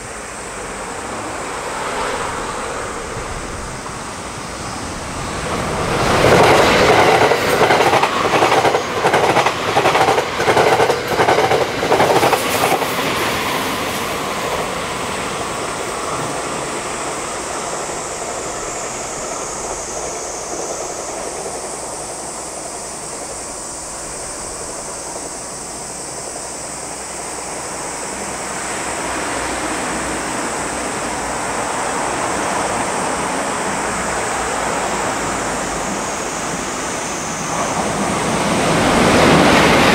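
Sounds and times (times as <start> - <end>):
approaching train rumble: 0.0 - 39.9
train wheels clickety-clack: 5.1 - 23.9.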